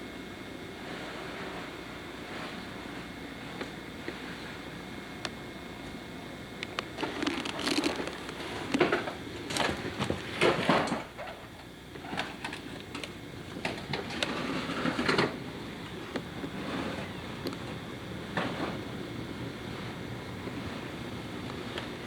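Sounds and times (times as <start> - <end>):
rustling and clattering: 7.0 - 11.4.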